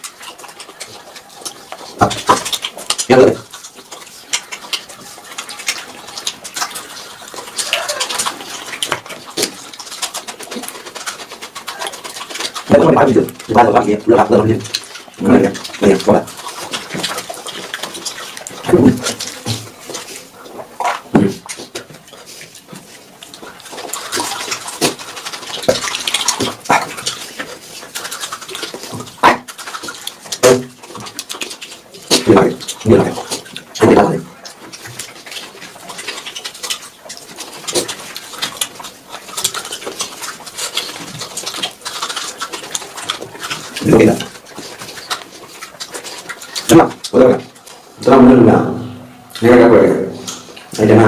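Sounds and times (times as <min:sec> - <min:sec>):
wet chewing and lip-smacking: 0:00.0 - 0:51.0
mouth or throat noises: 0:07.0 - 0:31.3, 0:37.6 - 0:45.2, 0:45.9 - 0:51.0.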